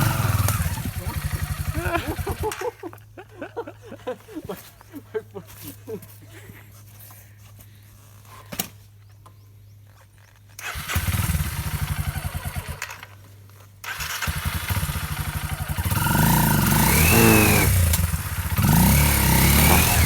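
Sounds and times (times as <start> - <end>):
motorcycle engine starting and revving: 0.0 - 2.8, 8.0 - 20.0.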